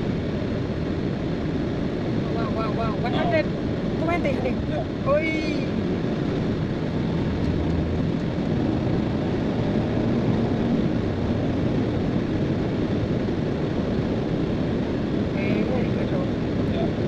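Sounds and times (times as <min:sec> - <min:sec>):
road and wind noise in car: 0:00.0 - 0:17.0.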